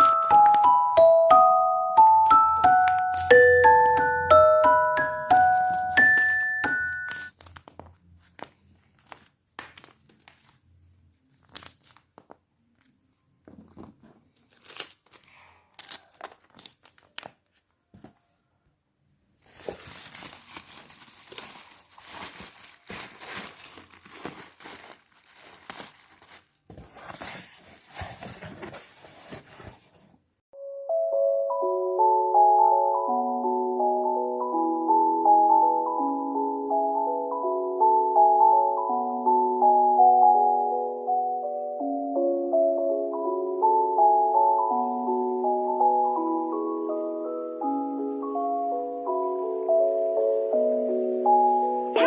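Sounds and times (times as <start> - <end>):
plastic packaging crinkling: 0.0 - 0.8, 5.4 - 12.9, 14.3 - 17.7, 19.4 - 30.0.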